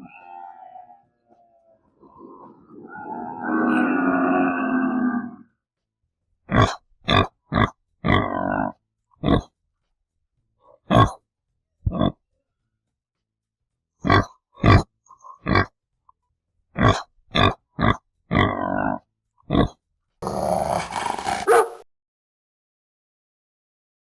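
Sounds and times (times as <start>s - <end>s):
pig grunting: 6.5s - 9.5s, 19.5s - 21.8s.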